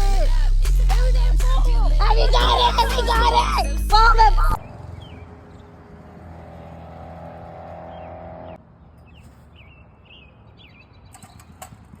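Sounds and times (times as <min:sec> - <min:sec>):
engine running: 0:00.0 - 0:08.6
birds chirping: 0:02.2 - 0:11.9.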